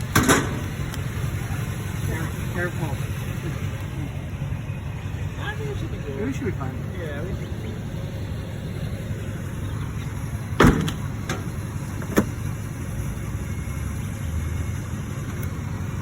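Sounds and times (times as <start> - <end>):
vehicle engine low rumble: 0.0 - 16.0
heavy thud: 10.6 - 12.3.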